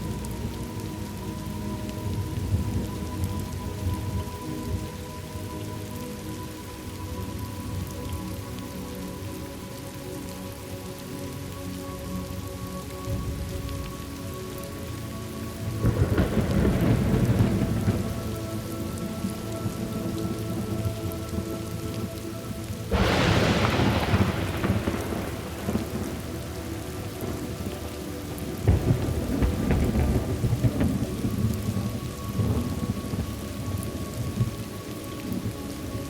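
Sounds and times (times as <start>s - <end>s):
steady rain: 0.0s - 36.0s
thunder: 15.8s - 18.4s, 22.9s - 34.6s.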